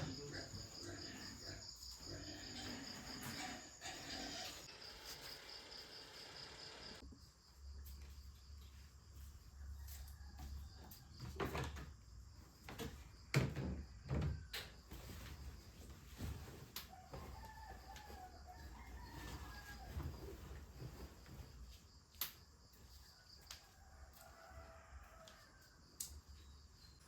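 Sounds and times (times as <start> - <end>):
rooster crowing: 9.6 - 10.9, 16.9 - 20.2, 23.6 - 25.8.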